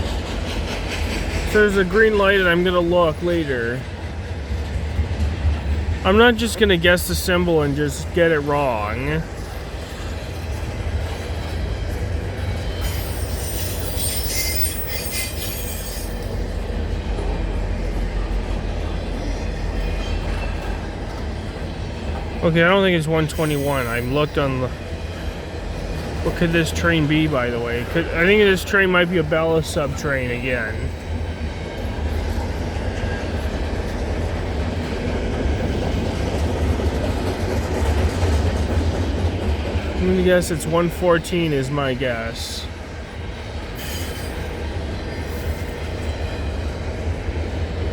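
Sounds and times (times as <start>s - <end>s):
train wheels squealing: 0.0s - 3.8s, 11.0s - 16.8s, 17.8s - 21.2s, 23.0s - 34.9s, 43.4s - 47.6s
train cars rumbling past: 0.0s - 47.9s.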